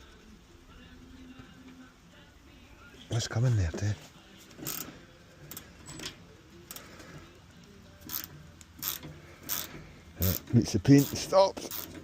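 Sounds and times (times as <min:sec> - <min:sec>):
spanner clicking and scraping metal: 0:04.6 - 0:04.9, 0:05.5 - 0:07.1, 0:08.0 - 0:12.0.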